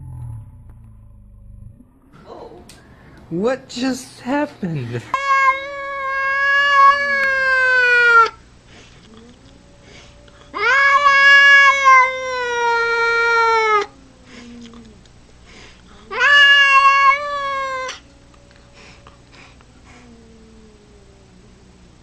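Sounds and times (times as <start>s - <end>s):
cat meowing: 5.2s - 8.4s, 9.1s - 15.0s, 16.1s - 19.0s.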